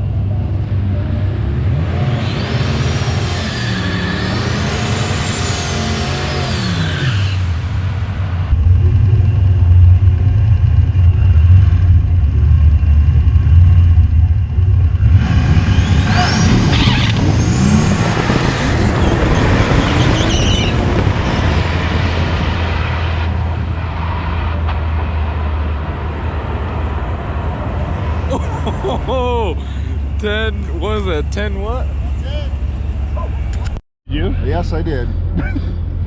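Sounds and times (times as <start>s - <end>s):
drag car engine drone: 0.0s - 36.0s
loud rush with rising whistles: 15.3s - 28.2s.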